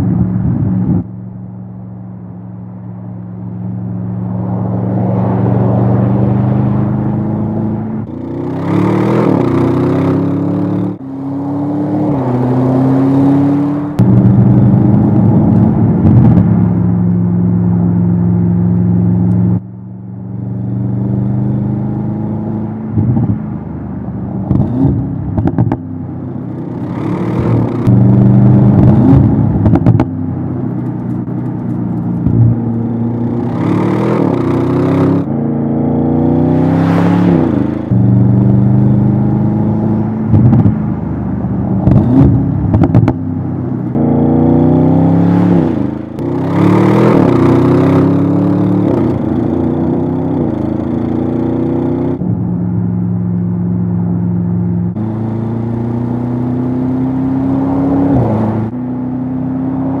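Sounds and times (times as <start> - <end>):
car rushing past: 3.4 - 16.8, 31.2 - 52.2
car engine accelerating hard: 4.2 - 19.6, 24.4 - 53.2, 53.8 - 60.0.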